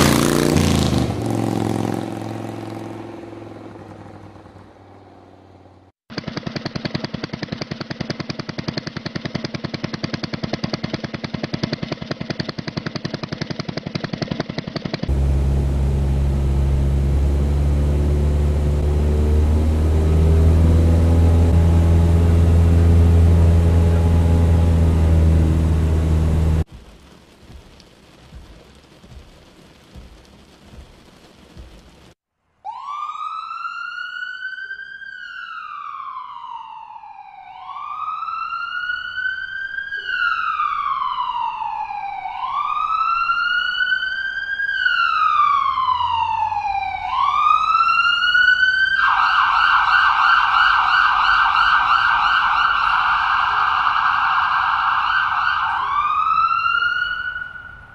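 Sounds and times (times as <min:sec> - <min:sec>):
airplane engine: 0:00.0 - 0:26.7
police siren wailing: 0:15.1 - 0:26.7, 0:32.6 - 0:57.9
police siren yelp: 0:32.6 - 0:57.9.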